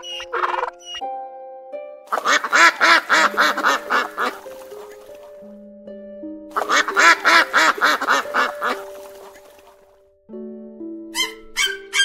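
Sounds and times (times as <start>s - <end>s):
duck quacking: 0.0s - 1.0s, 2.1s - 4.5s, 6.6s - 9.4s
sharp bird calls: 0.0s - 1.1s
background music: 0.0s - 12.0s.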